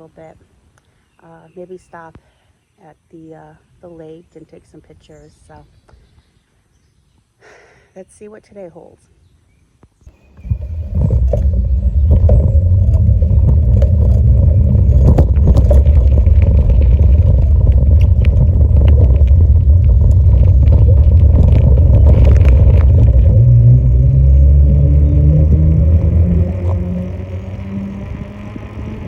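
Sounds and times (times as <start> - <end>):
wind buffeting microphone: 10.1 - 29.0
bicycle clicks and rattles: 10.4 - 27.3.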